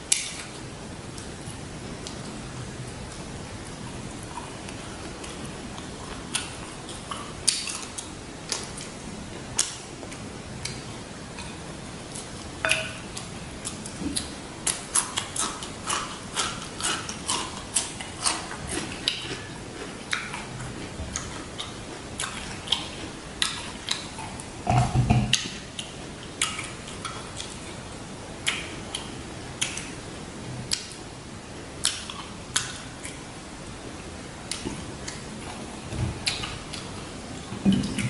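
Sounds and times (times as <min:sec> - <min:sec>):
chewing and mouth sounds: 0:03.1 - 0:09.0, 0:09.6 - 0:27.8, 0:36.2 - 0:38.0.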